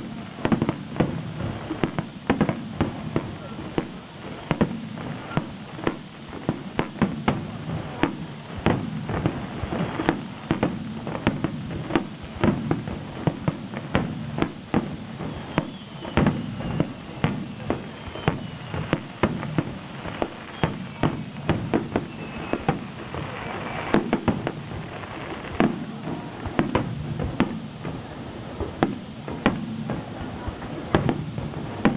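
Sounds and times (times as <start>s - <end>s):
fireworks banging: 0.0s - 31.9s
faint falling whistles: 15.3s - 24.0s.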